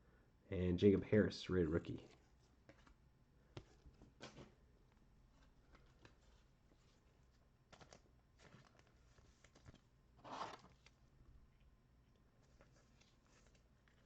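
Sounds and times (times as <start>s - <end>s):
trading cards rustling: 5.3s - 11.0s
wrapper tearing: 7.8s - 10.9s.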